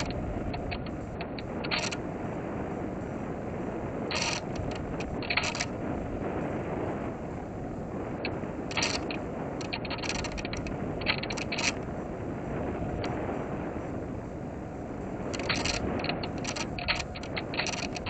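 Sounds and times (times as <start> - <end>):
mechanical buzzing: 0.0 - 2.0, 4.1 - 5.8, 8.7 - 11.8, 15.3 - 18.0.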